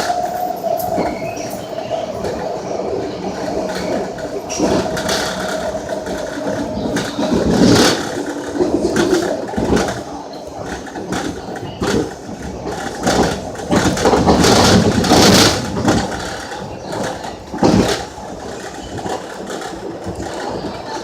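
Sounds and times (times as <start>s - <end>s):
train rumble and rattle: 0.0s - 21.0s.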